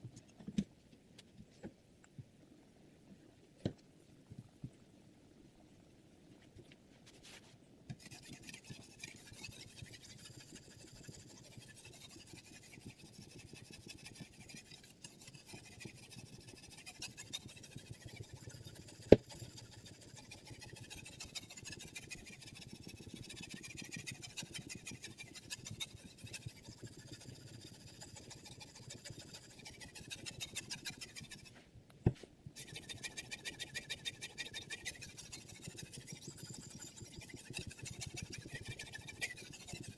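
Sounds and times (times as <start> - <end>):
sharpening stone scraping knife: 8.0 - 31.6, 32.6 - 39.9.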